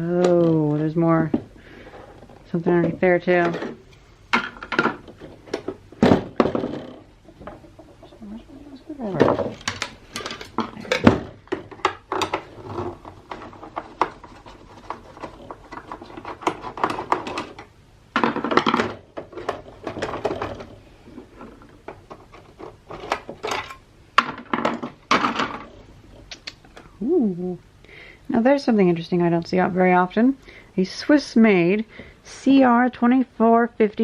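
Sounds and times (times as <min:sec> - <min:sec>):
plastic parts clicking and clattering: 0:00.1 - 0:08.1, 0:09.1 - 0:25.8
plastic scraping: 0:09.1 - 0:23.8.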